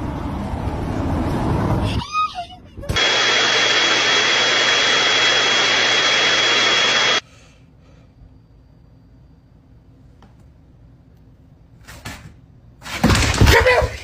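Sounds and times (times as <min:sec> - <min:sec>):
machine rushing with whine: 0:03.0 - 0:07.2.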